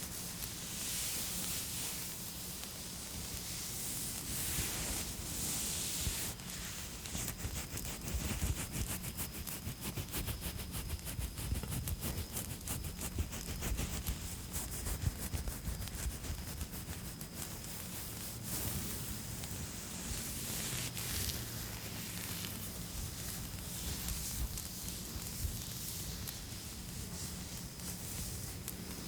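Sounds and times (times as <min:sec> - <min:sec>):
fire crackling: 0:11.6 - 0:29.0.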